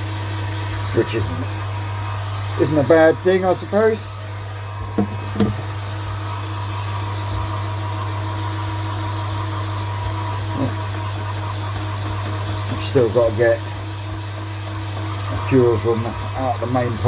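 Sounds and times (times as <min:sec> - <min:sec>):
pond pumps humming: 0:00.0 - 0:17.0
light knocks: 0:04.9 - 0:05.6.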